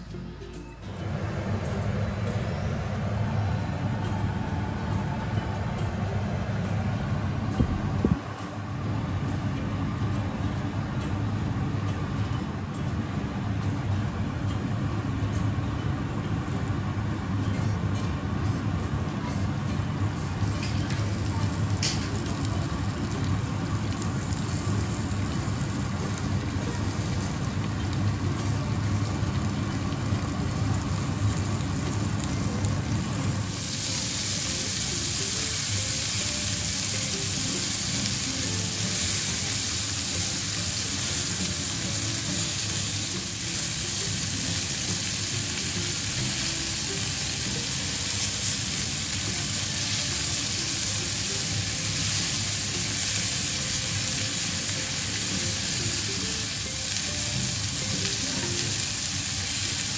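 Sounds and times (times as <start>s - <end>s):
food sizzling in oil: 14.4s - 59.9s.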